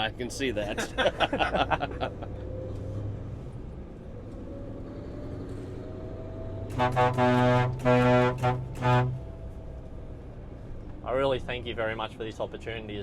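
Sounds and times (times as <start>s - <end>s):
truck air horn blasts: 6.7s - 9.4s.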